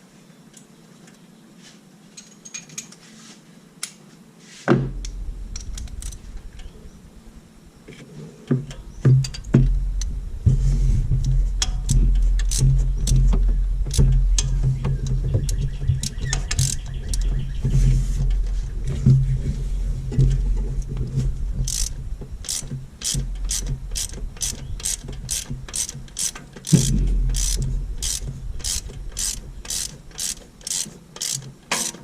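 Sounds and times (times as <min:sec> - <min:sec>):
steady low hum: 0:03.4 - 0:32.0
socket ratchet clicking: 0:16.0 - 0:17.3, 0:21.7 - 0:32.0.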